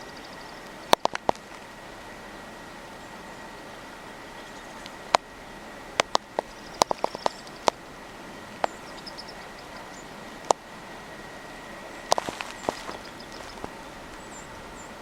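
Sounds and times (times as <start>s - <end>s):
birds tapping at feeder: 0.0s - 1.7s, 6.0s - 7.9s, 8.5s - 10.7s, 12.0s - 14.9s
steady hiss: 0.0s - 15.0s.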